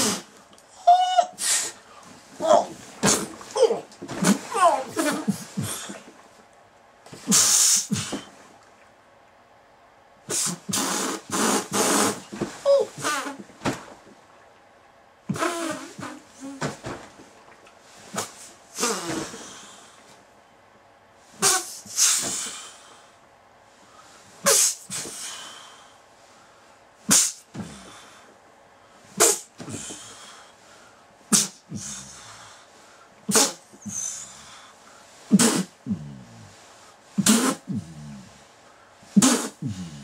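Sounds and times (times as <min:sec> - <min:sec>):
person groaning: 0:02.4 - 0:02.8, 0:03.5 - 0:06.0, 0:35.8 - 0:36.6, 0:37.7 - 0:38.3, 0:39.5 - 0:40.0
breathy exhaling: 0:18.1 - 0:20.2, 0:29.0 - 0:40.0.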